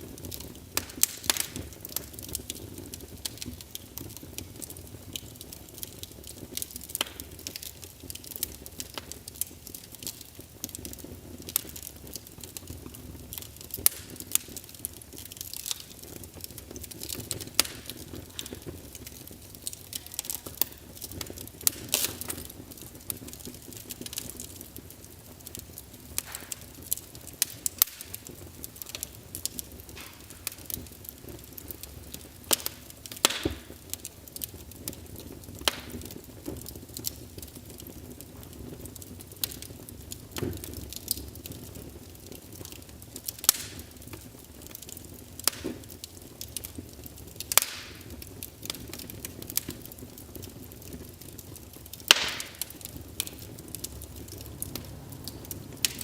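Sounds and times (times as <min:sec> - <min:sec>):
logs crackling and popping: 0:00.0 - 0:56.0
low rush of flame: 0:00.0 - 0:56.0.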